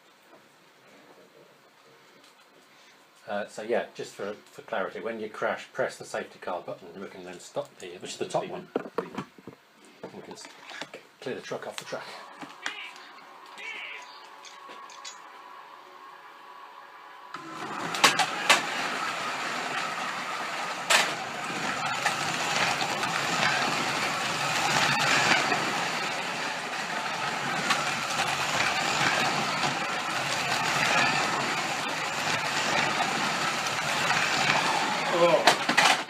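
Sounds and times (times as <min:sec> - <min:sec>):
slot cars whirring on plastic track: 0:11.9 - 0:36.0.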